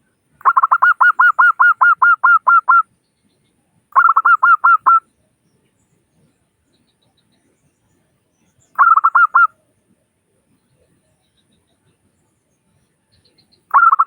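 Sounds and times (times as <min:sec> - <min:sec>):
dove cooing: 0:00.4 - 0:02.8, 0:04.0 - 0:05.0, 0:08.8 - 0:09.5, 0:13.7 - 0:14.0.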